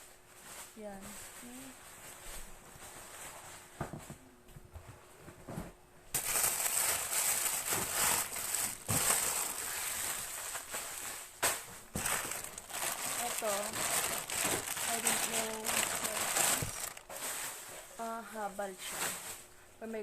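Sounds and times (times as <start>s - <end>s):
plastic packaging crinkling: 6.1s - 17.7s.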